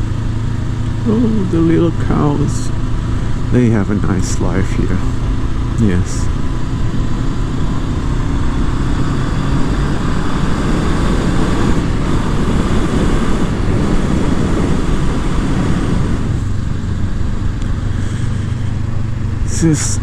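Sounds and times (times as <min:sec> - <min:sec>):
motorcycle engine running: 0:00.0 - 0:20.0
wind rush on microphone: 0:06.6 - 0:19.4.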